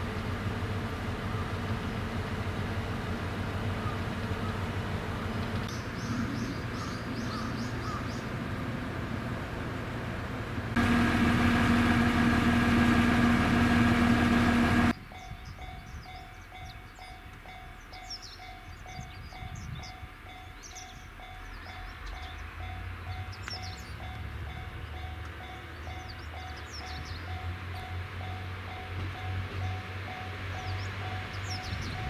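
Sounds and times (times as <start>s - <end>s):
loud engine hum: 0.0s - 15.0s
low diesel rumble: 0.0s - 15.0s
birds chirping: 3.6s - 8.4s, 15.0s - 28.4s, 29.6s - 32.0s.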